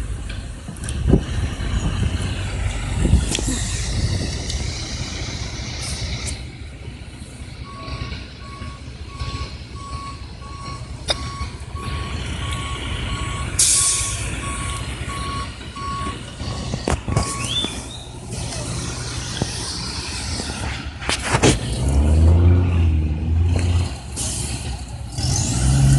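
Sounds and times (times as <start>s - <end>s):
diesel engine running: 0.0s - 25.9s
backup alarm beeping: 7.6s - 17.9s
air brake hiss: 13.6s - 14.2s.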